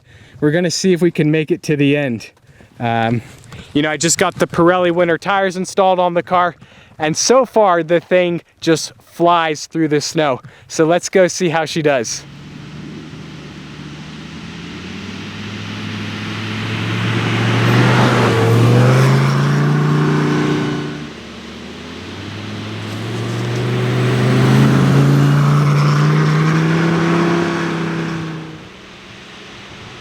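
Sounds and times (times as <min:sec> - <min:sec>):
sports car accelerating hard: 0:12.2 - 0:30.0.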